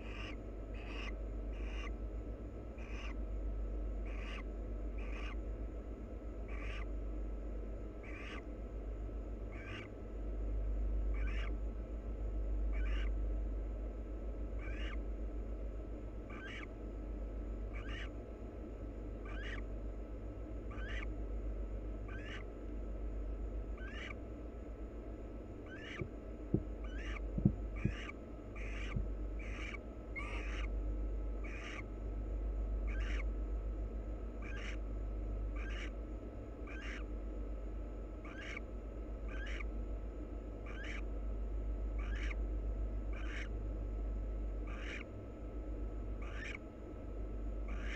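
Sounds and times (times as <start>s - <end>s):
barn owl rasping hiss calls: 0.0s - 2.0s, 2.8s - 3.2s, 4.0s - 5.5s, 6.4s - 7.0s, 8.0s - 8.6s, 9.4s - 10.0s, 11.1s - 11.6s, 12.7s - 13.2s, 14.6s - 15.1s, 16.2s - 16.8s, 17.7s - 18.2s, 19.2s - 19.7s, 20.6s - 21.2s, 22.1s - 22.6s, 23.7s - 24.2s, 25.6s - 30.8s, 31.4s - 31.9s, 32.8s - 33.3s, 34.4s - 34.8s, 35.5s - 36.0s, 36.6s - 37.1s, 38.2s - 39.8s, 40.6s - 41.1s, 42.0s - 42.4s, 43.1s - 43.6s, 44.6s - 45.2s, 46.2s - 46.7s, 47.6s - 47.9s
steady low hum: 0.0s - 47.9s
sharp knocks: 26.0s - 28.1s.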